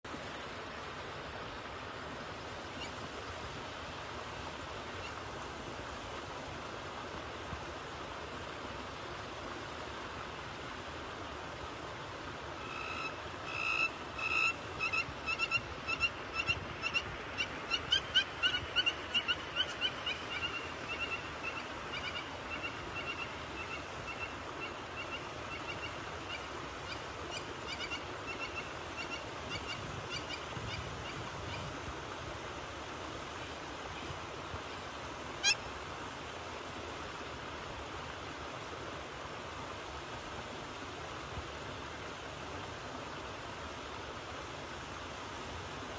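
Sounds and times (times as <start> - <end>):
steady background hiss: 0.1 - 45.9
bird calling repeated notes: 12.6 - 24.3, 35.4 - 35.6.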